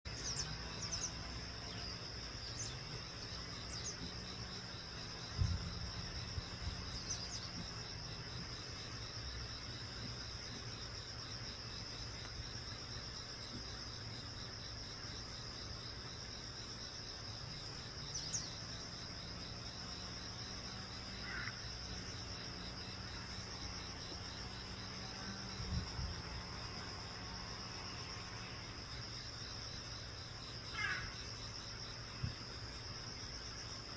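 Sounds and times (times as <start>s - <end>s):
insect trilling: 16.8s - 32.2s.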